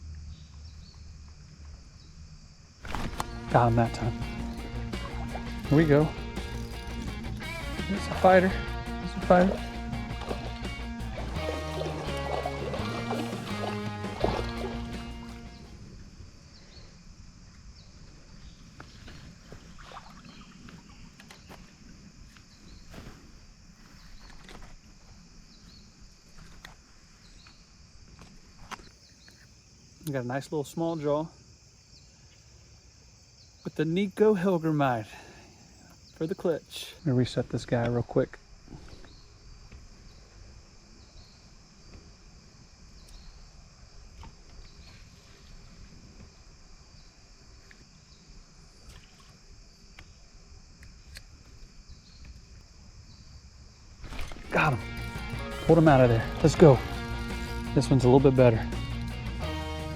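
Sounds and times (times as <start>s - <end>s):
insect chirping: 0.0s - 59.9s
small water splashes: 4.1s - 8.4s, 9.0s - 15.7s, 19.5s - 21.8s, 48.6s - 49.7s, 54.0s - 54.8s.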